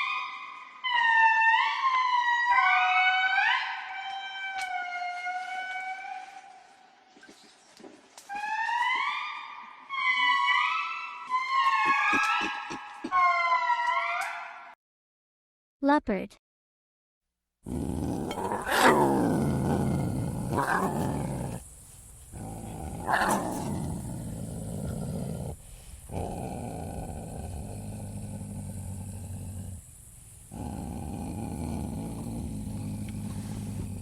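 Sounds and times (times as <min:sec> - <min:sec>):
leopard growling and snarling: 0:17.6 - 0:34.0.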